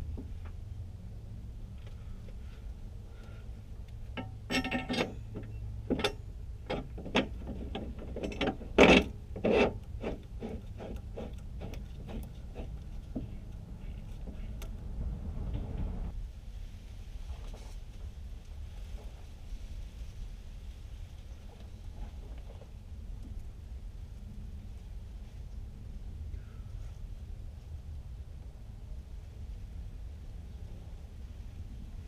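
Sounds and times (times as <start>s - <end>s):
metal parts clinking and knocking: 4.1s - 9.8s
soft rough scraping: 4.2s - 16.2s.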